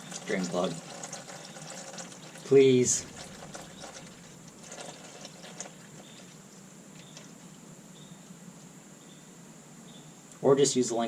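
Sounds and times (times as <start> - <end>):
oil trickling into a pan: 0.0 - 7.4
faint hum: 0.0 - 11.0.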